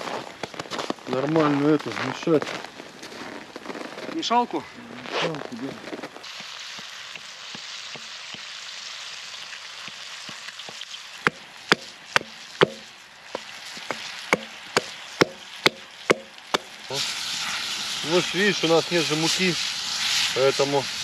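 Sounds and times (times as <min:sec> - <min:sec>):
fish sizzling in a pan: 0:06.0 - 0:21.0
sharp knocks: 0:11.3 - 0:12.9, 0:13.8 - 0:16.7.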